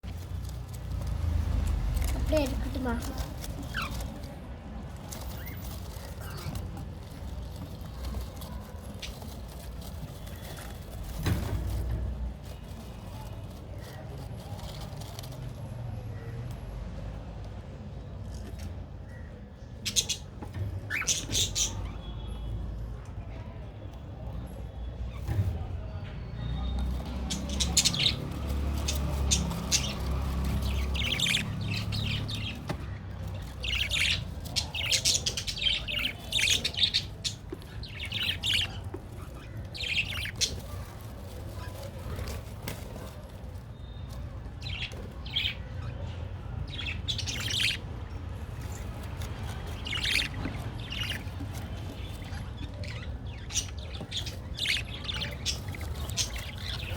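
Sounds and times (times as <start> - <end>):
budgerigar chicks squawking: 2.0 - 4.2, 19.8 - 22.1, 26.7 - 41.0, 46.6 - 56.9.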